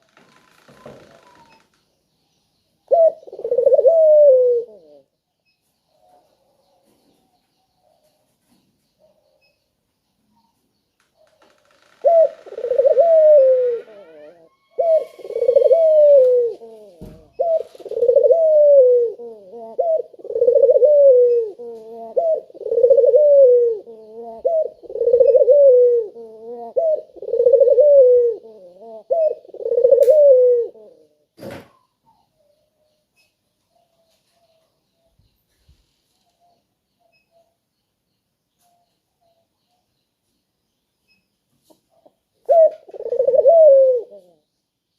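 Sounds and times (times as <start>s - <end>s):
dove cooing: 2.9s - 5.1s, 12.0s - 32.2s, 41.9s - 44.4s.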